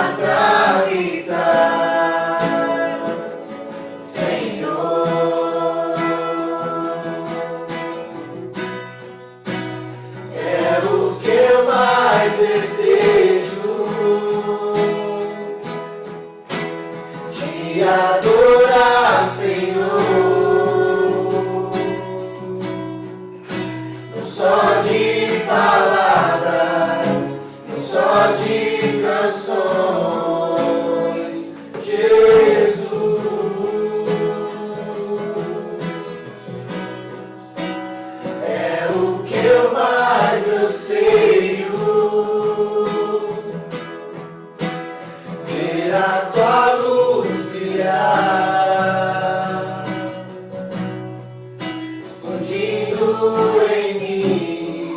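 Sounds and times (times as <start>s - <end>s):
people singing a worship song: 0.0s - 54.9s
strummed acoustic guitar: 0.0s - 54.9s.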